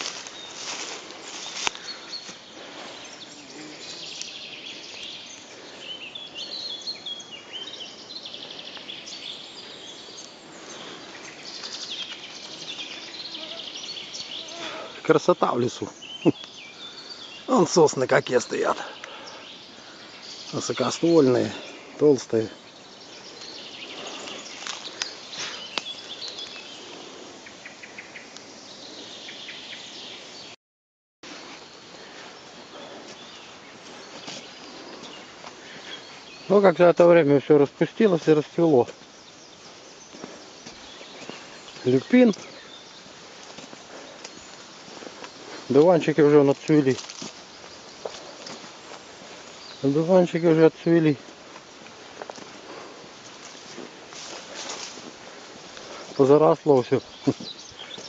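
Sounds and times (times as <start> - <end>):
forest birds singing: 0.0 - 30.6, 31.2 - 58.0
steady background hiss: 31.3 - 58.0.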